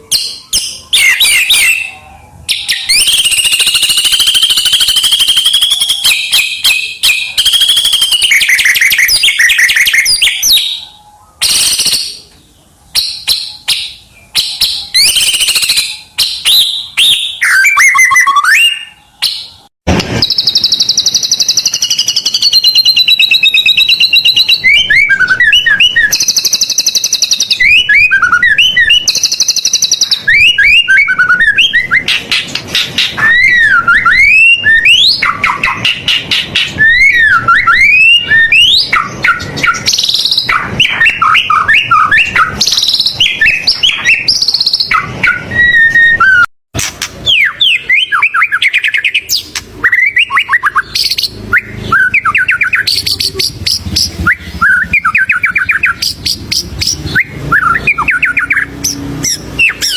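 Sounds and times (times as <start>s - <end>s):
bird singing varied song: 0.0s - 59.9s.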